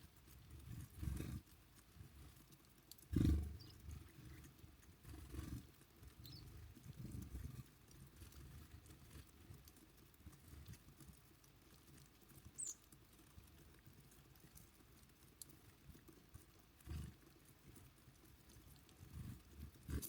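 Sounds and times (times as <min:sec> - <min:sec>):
small birds pecking ticks: 0:00.0 - 0:20.0
high bird chirp: 0:06.2 - 0:06.4, 0:12.6 - 0:12.8.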